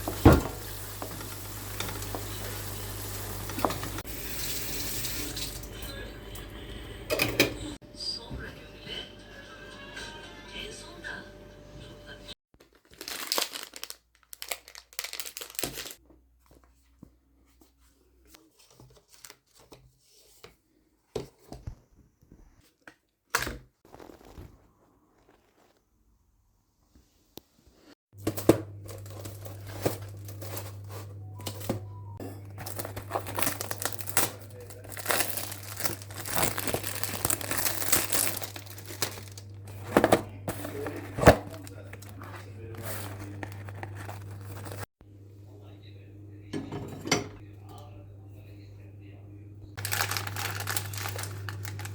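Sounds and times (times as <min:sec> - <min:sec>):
crinkly material rustling and tearing: 0:12.6 - 0:16.0, 0:23.8 - 0:25.8, 0:32.4 - 0:44.9, 0:49.8 - 0:51.9
faint low hum: 0:28.8 - 0:51.9.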